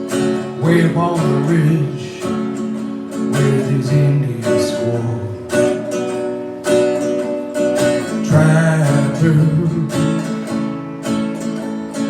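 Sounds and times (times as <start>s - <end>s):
acoustic guitar strumming: 0.0s - 12.0s
person singing: 0.4s - 5.9s, 8.0s - 10.5s.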